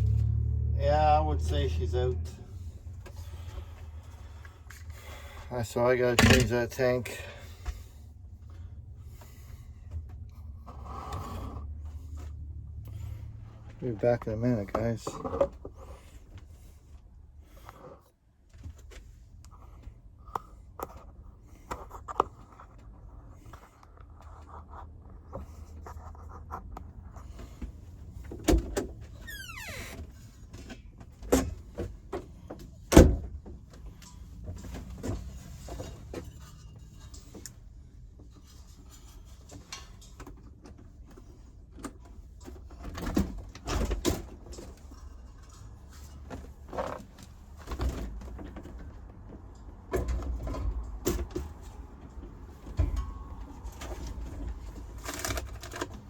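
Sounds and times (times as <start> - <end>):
clicks and knocks of handling: 38.2 - 56.0.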